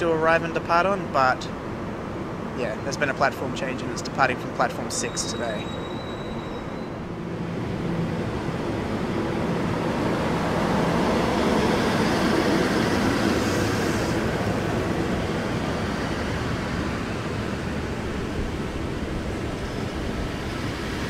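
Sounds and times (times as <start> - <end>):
train wheels rolling on rails: 5.0 - 21.0.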